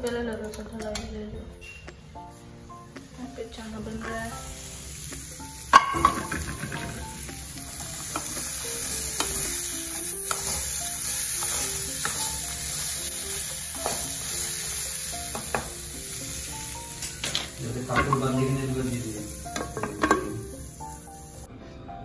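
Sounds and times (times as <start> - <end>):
frying sizzle: 3.4 - 21.5.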